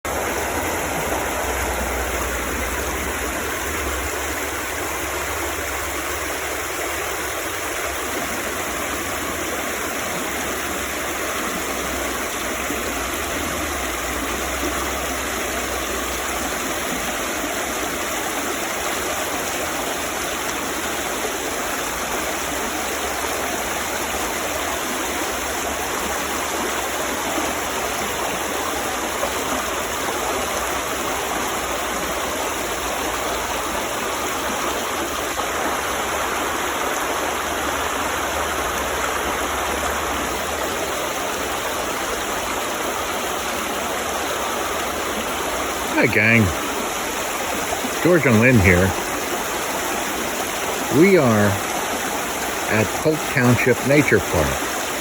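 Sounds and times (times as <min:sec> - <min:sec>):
stream flowing water: 0:00.1 - 0:55.0.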